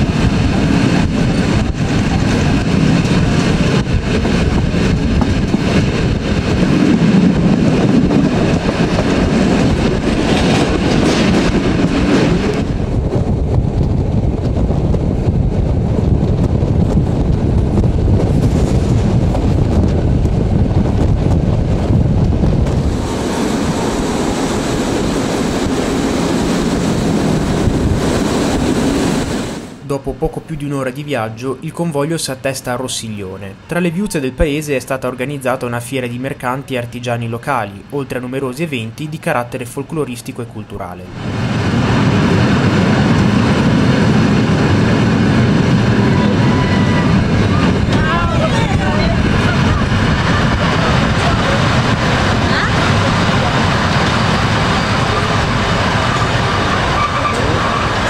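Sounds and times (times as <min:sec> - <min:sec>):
train rumble and rail noise: 0:00.0 - 0:58.0.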